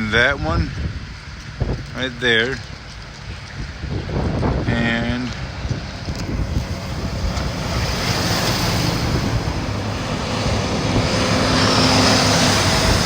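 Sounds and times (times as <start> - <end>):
passing engine: 5.2 - 13.0.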